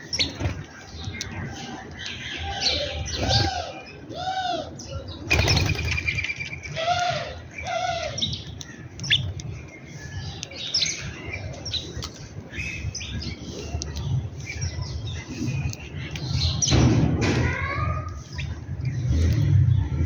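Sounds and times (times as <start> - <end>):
birds chirping and calling: 0.0 - 20.0.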